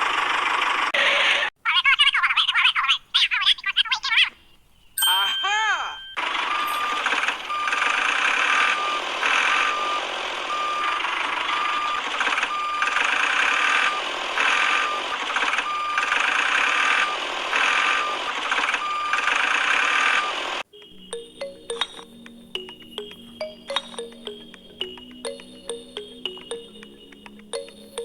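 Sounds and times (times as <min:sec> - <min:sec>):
noisy machine running: 0:00.0 - 0:01.5, 0:06.2 - 0:20.6
reversing beeper: 0:05.9 - 0:21.2.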